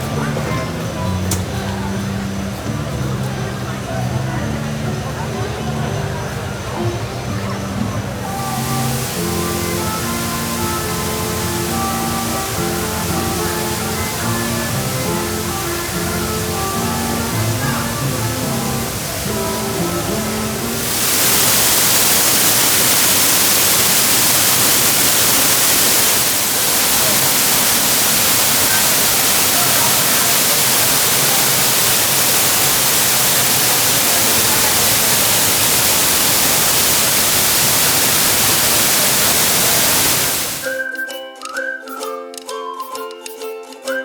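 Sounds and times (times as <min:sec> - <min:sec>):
music: 0:00.0 - 0:25.6, 0:40.6 - 0:44.0
waterfall rushing: 0:08.1 - 0:40.7.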